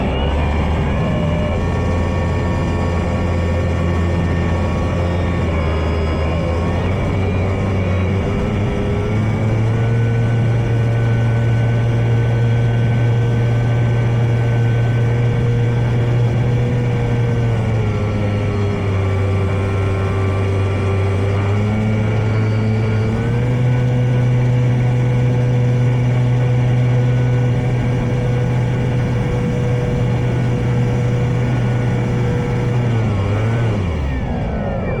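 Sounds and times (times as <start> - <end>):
electric model plane motor whine: 0.0 - 34.6.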